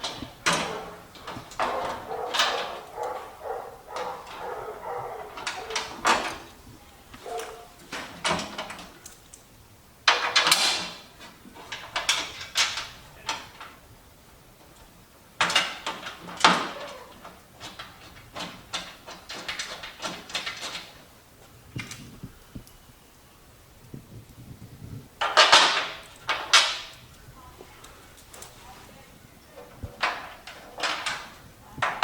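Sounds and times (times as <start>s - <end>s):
metal panel clunks and scrapes: 0.0s - 6.6s.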